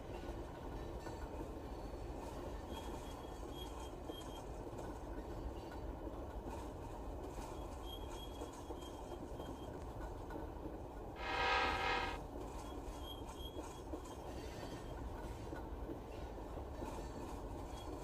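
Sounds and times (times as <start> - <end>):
train rumbling: 0.0 - 13.1
train horn blast: 11.2 - 12.2.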